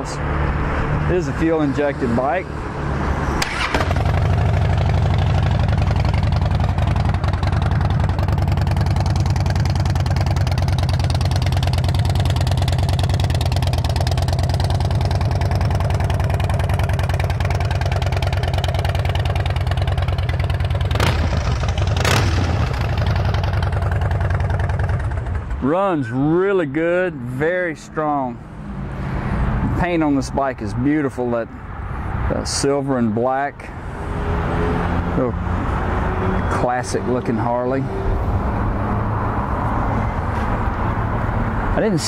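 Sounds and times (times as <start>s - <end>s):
motorcycle engine idling: 3.5s - 26.3s.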